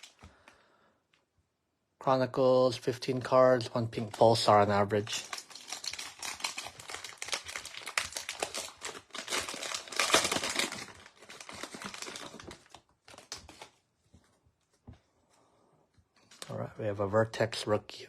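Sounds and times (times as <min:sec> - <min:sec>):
wrapper crinkling as torn open: 0:05.0 - 0:13.8.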